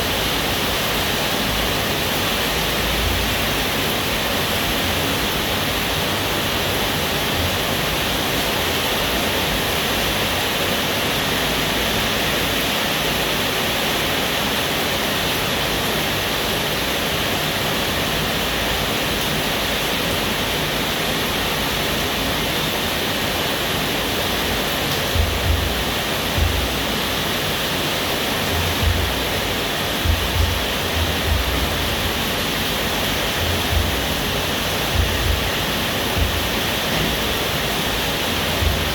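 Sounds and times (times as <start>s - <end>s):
steady rain falling: 0.0s - 38.9s
short low thuds: 25.1s - 26.9s, 28.6s - 29.3s, 30.0s - 32.1s, 33.5s - 34.3s, 34.9s - 35.6s, 36.2s - 37.4s, 38.5s - 38.9s.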